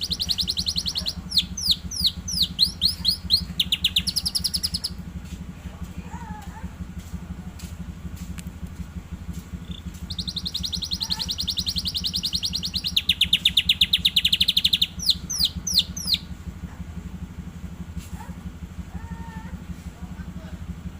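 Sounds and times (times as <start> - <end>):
canary trilling song: 0.0 - 5.0, 9.5 - 16.4
steady low hum: 0.0 - 20.9.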